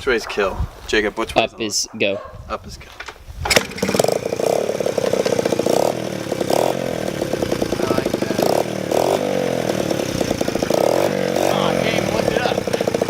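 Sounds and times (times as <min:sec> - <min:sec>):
dirt bike engine idling and revving: 0:03.5 - 0:13.0.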